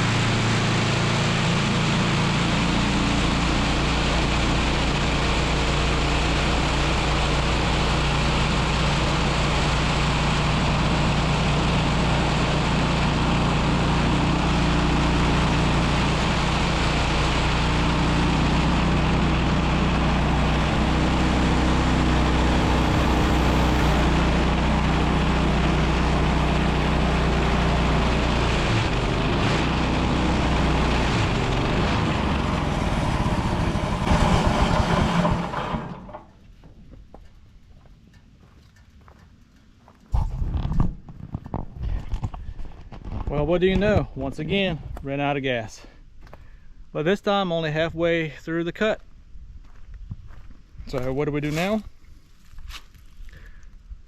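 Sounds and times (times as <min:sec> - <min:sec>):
sawmill engine running: 0:00.0 - 0:36.2.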